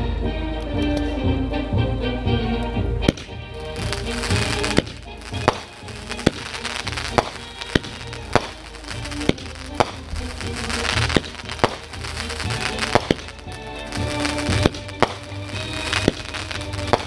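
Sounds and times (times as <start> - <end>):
music playing: 0.0 - 17.0
fireworks banging: 3.0 - 17.0.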